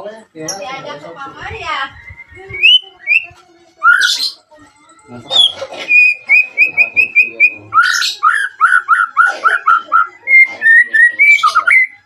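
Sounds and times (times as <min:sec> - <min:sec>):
bird whistling song: 0:01.6 - 0:04.4, 0:05.3 - 0:12.0.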